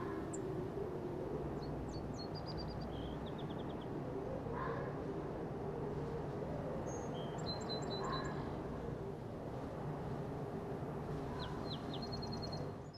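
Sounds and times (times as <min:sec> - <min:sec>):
low outdoor rumble: 0:00.0 - 0:12.9
small birds chirping: 0:01.6 - 0:04.0, 0:06.9 - 0:08.5, 0:11.2 - 0:12.9.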